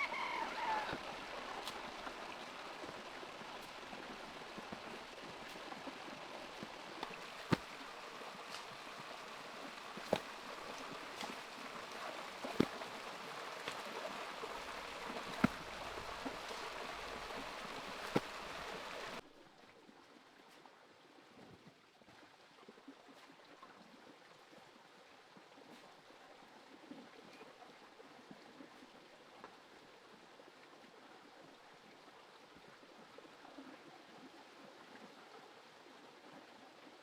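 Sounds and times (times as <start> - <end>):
running water rushing: 0.0 - 19.2.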